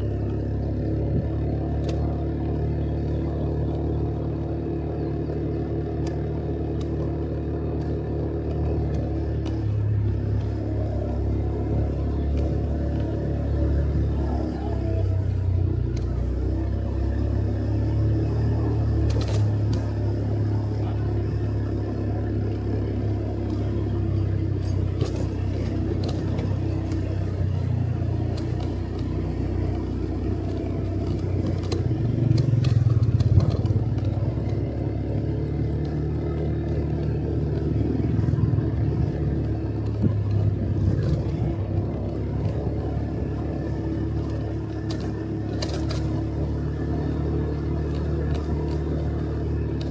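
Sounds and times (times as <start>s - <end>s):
motorcycle engine running: 0.0s - 49.9s
light clicks and rattles: 44.2s - 46.3s.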